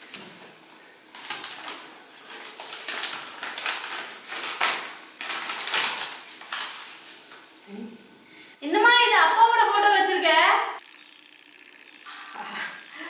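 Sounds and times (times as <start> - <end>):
plastic packet crinkling: 1.2 - 7.0.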